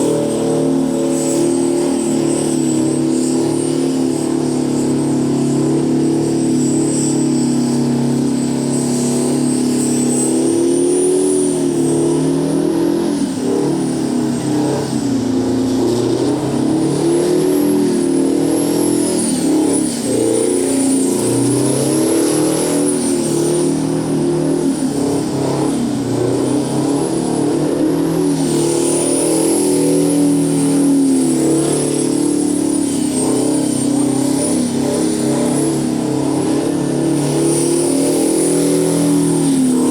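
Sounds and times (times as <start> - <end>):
diesel engine at high revs: 0.0 - 39.9.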